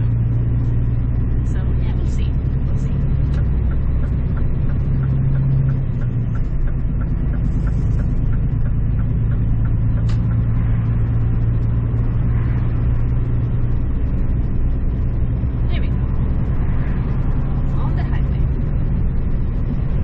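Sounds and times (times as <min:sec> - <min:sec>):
truck diesel engine droning: 0:00.0 - 0:20.0
light ticking: 0:03.2 - 0:10.5.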